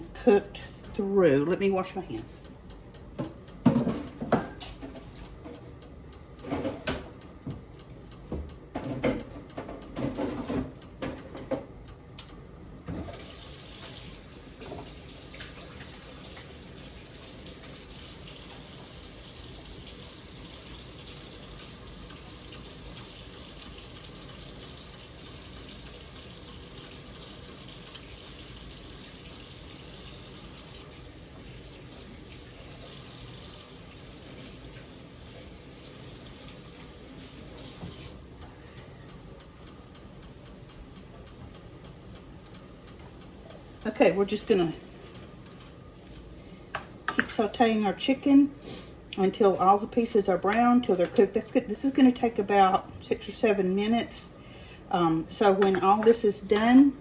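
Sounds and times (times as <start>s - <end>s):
tap water running into sink: 12.9s - 38.2s.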